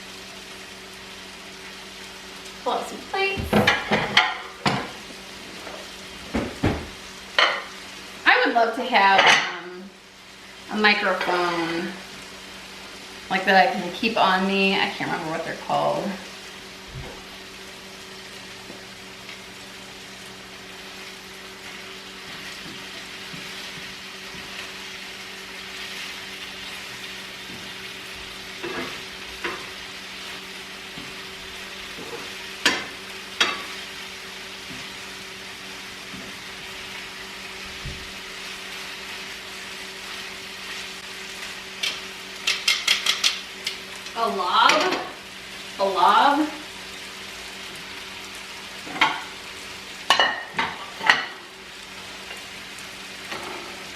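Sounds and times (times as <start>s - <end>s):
food sizzling in oil: 0.0s - 53.9s.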